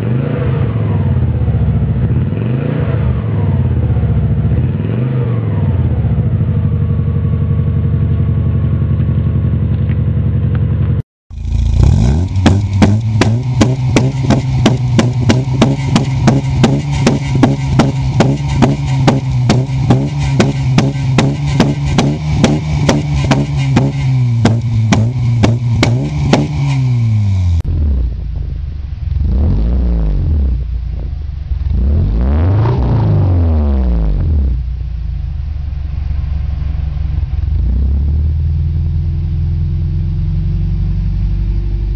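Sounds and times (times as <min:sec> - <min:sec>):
car engine rising: 0:00.0 - 0:41.9
car engine idling through exhaust: 0:05.6 - 0:32.4, 0:33.4 - 0:41.9.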